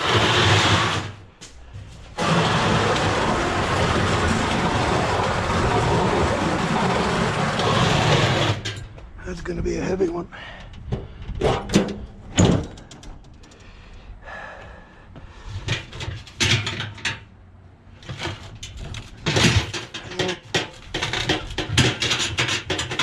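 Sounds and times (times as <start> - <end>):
scrap metal clattering: 0.0 - 9.0, 15.4 - 17.3, 18.0 - 23.0.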